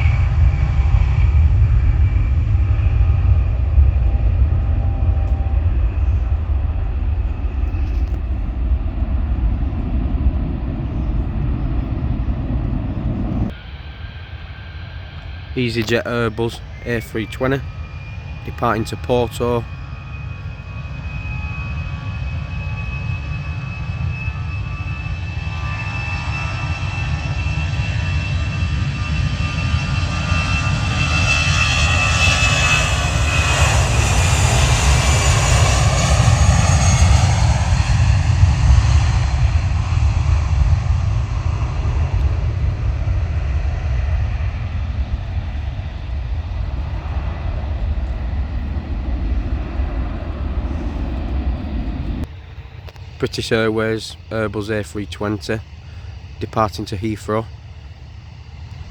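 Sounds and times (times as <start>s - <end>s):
jet engines at take-off power: 0.0s - 58.9s.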